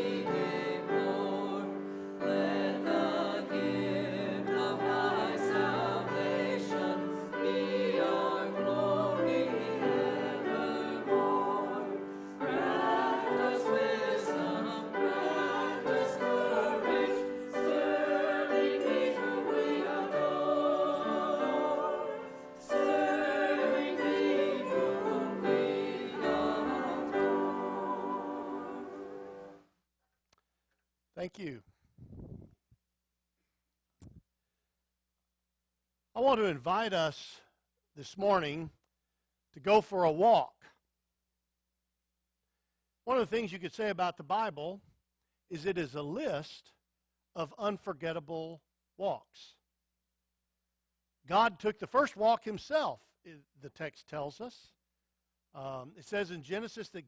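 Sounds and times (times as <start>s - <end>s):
choir singing: 0.0s - 29.6s.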